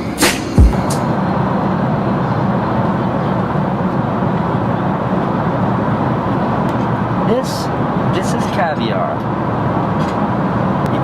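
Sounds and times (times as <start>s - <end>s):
hip-hop track with deep bass: 0.0s - 1.1s
airliner cabin engine noise: 0.0s - 11.0s.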